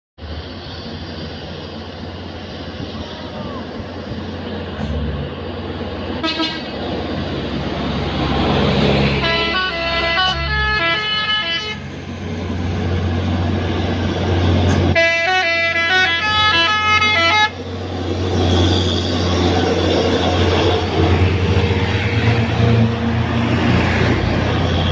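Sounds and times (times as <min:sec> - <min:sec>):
road noise: 0:00.2 - 0:24.9
truck engine droning: 0:00.2 - 0:24.9
truck musical horn: 0:06.2 - 0:06.8, 0:09.1 - 0:11.9, 0:14.9 - 0:17.6.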